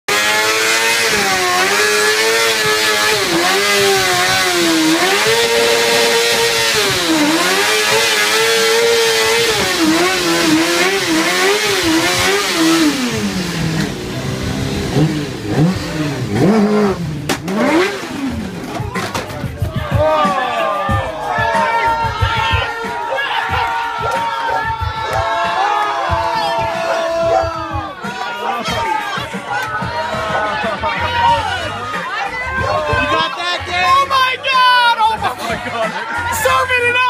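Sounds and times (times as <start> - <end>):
motorcycle engine revving: 0.1 - 19.9.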